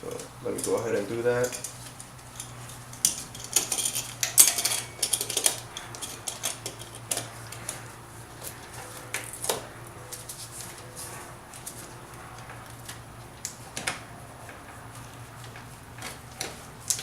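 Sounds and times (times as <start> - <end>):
low steady hum: 0.0 - 17.0
metal tools clinking on metal: 0.6 - 7.6.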